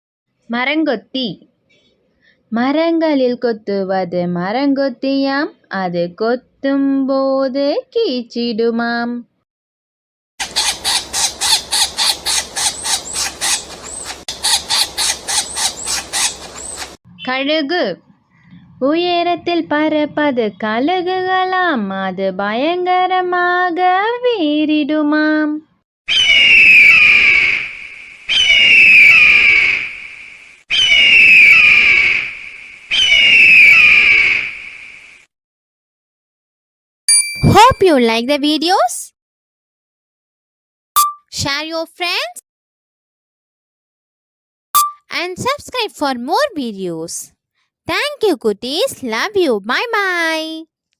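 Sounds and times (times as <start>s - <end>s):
eagle screaming: 10.4s - 17.0s, 26.1s - 30.1s, 30.7s - 34.6s
woodpecker sharp calls: 10.4s - 17.0s, 26.1s - 29.9s, 30.7s - 32.1s, 32.9s - 34.3s.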